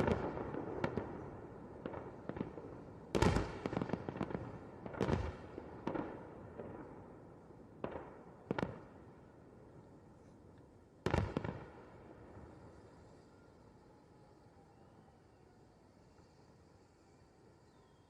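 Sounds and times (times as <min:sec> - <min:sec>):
fireworks bangs with echo: 0:00.0 - 0:07.1, 0:07.7 - 0:08.9, 0:11.0 - 0:12.9.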